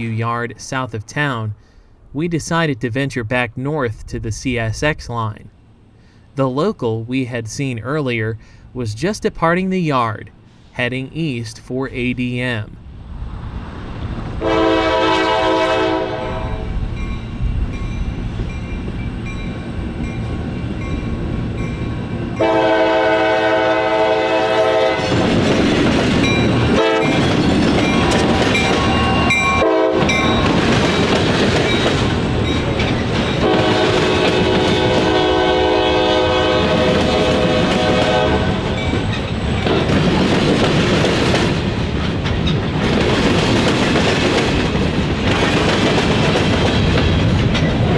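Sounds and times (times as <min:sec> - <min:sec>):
train rumbling and clattering by: 0:03.2 - 0:47.9
locomotive air horn blasts: 0:14.4 - 0:16.7, 0:22.4 - 0:25.2, 0:26.8 - 0:27.2, 0:28.8 - 0:30.3, 0:33.4 - 0:38.8.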